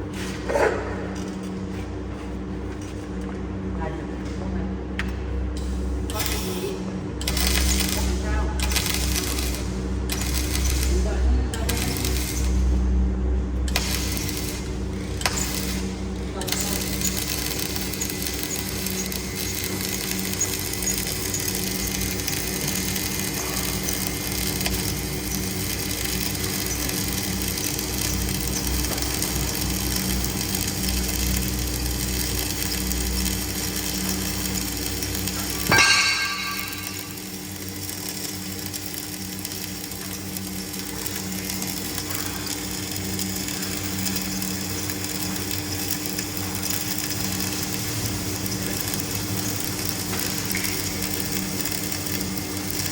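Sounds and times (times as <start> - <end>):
welding machine crackling and humming: 0.0 - 52.9
sharp metallic strike: 35.7 - 37.2.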